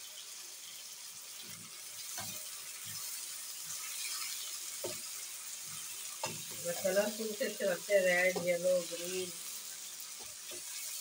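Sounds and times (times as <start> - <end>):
vegetables sizzling in oil: 0.0 - 11.0
wooden spoon knocking a pan: 8.2 - 8.8.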